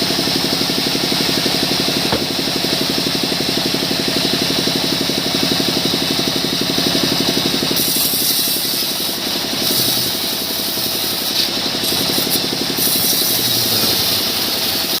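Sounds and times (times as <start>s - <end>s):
engine drone: 0.0s - 15.0s
high saw whine: 0.0s - 15.0s.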